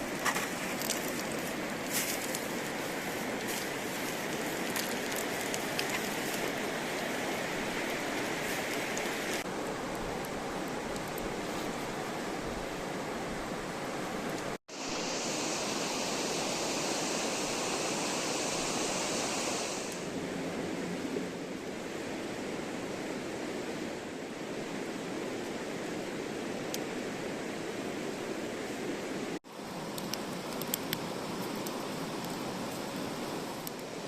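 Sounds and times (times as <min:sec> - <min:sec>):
bright hiss: 0:14.7 - 0:20.2.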